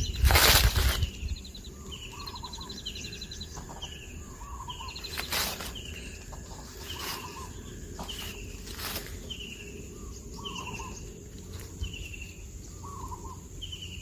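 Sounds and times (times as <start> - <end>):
rustle of movement: 0.0 - 1.4, 3.5 - 12.7
small birds chirping: 0.0 - 14.0.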